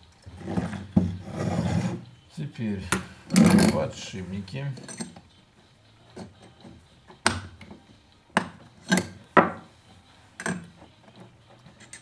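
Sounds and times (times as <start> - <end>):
metallic knocks of tools handled: 6.2 - 9.7.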